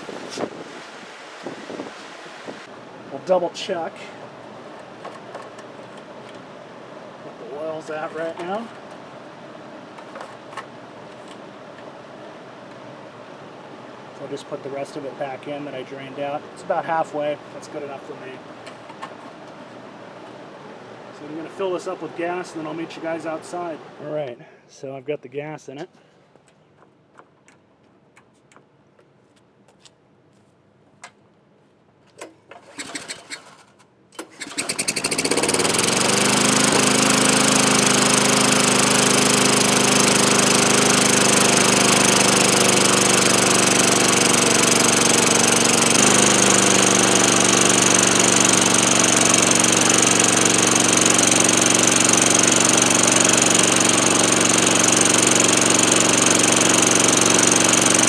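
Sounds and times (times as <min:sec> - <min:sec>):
lawnmower engine running: 0:03.6 - 0:06.5, 0:07.3 - 0:09.3, 0:09.9 - 0:11.4, 0:32.2 - 0:58.0
handling clicks and knocks: 0:04.7 - 0:06.4, 0:08.0 - 0:09.0, 0:09.9 - 0:11.9, 0:18.6 - 0:19.6.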